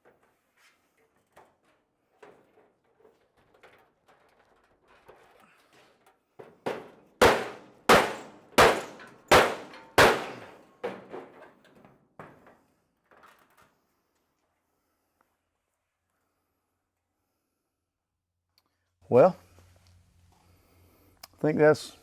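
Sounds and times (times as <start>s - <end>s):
hammer striking steel: 7.2s - 11.1s.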